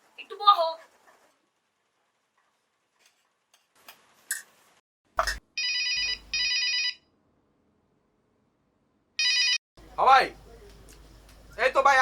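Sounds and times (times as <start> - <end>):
phone ringing: 5.6 - 7.0, 9.2 - 9.6.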